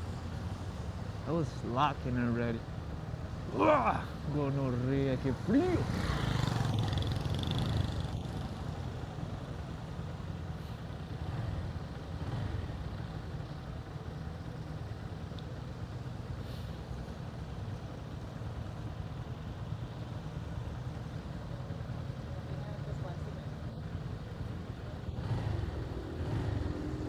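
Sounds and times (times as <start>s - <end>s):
road and wind noise: 0.0s - 27.0s
motorcycle engine rumble: 3.4s - 4.3s.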